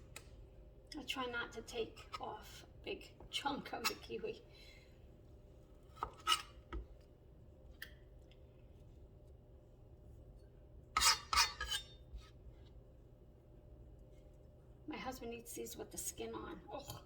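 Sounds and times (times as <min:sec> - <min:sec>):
faint steady hum: 0:00.0 - 0:17.0
knife scraping and slicing: 0:05.9 - 0:06.6, 0:11.0 - 0:12.0.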